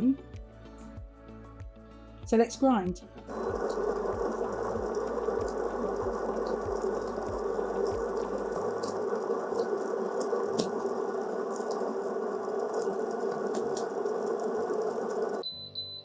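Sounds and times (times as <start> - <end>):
burr grinder grinding coffee beans: 3.3 - 15.4.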